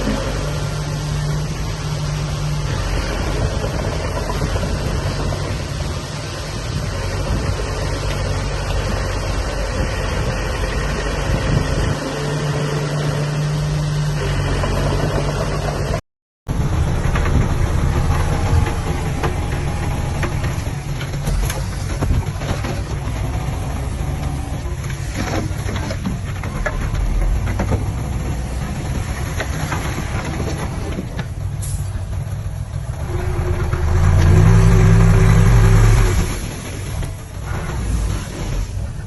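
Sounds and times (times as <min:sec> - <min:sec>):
heavy machinery diesel engines: 0:00.0 - 0:39.0.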